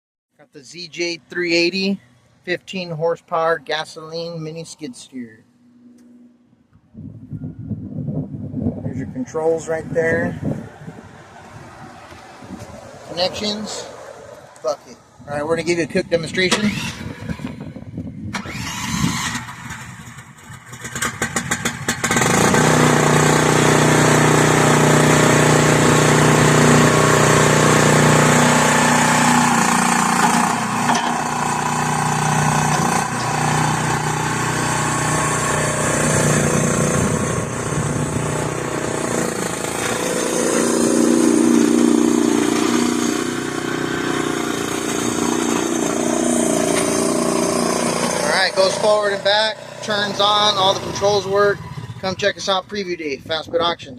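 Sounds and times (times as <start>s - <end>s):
small gasoline engine running: 16.5s - 17.5s, 18.4s - 52.2s
starter motor clicking: 18.3s - 20.2s.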